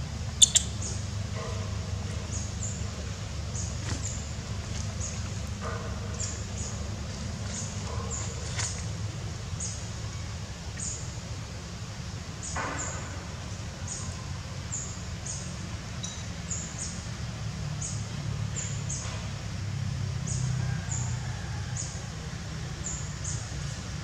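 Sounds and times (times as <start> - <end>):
steady low hum: 0.0 - 24.0
small bird chirping: 0.4 - 1.1.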